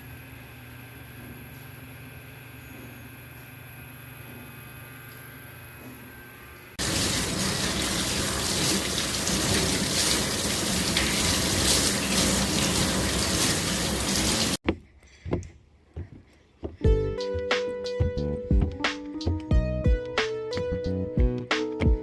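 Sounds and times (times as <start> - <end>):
running water: 6.8 - 14.6.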